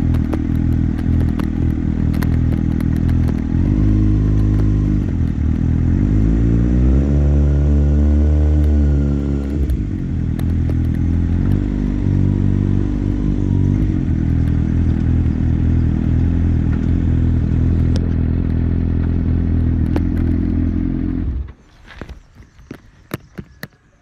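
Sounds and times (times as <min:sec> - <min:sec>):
motorcycle engine idling: 0:00.0 - 0:06.2, 0:08.6 - 0:24.0.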